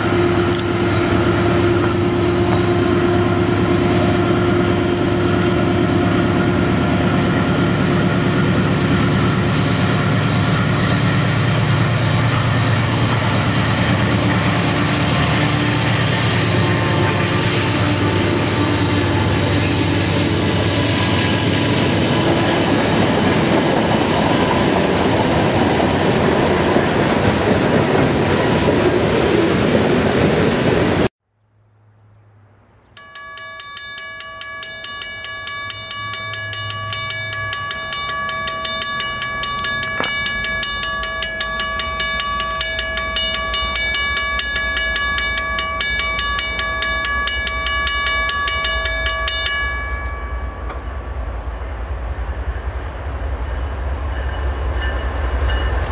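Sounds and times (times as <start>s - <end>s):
high multi-tone warning sound: 0.0s - 24.4s, 33.0s - 51.1s
locomotive rumble: 0.0s - 31.1s, 33.0s - 55.9s
train wheels on rails: 0.0s - 31.1s, 33.0s - 55.9s.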